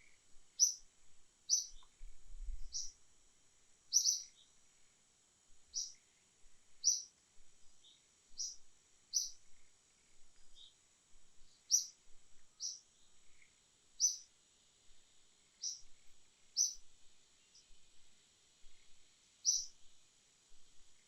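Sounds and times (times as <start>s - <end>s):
bird chirping: 0.0s - 0.9s, 1.5s - 2.0s, 2.7s - 3.0s, 3.9s - 4.6s, 5.7s - 6.0s, 6.8s - 7.1s, 7.8s - 10.8s, 11.4s - 14.3s, 15.5s - 17.8s, 19.4s - 19.8s
insect drone: 0.0s - 21.0s.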